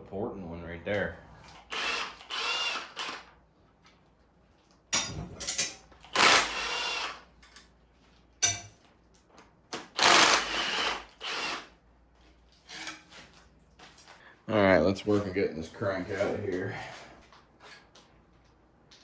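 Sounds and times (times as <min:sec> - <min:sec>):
power tool bursts: 0:01.6 - 0:03.3, 0:06.1 - 0:07.2, 0:09.9 - 0:11.7.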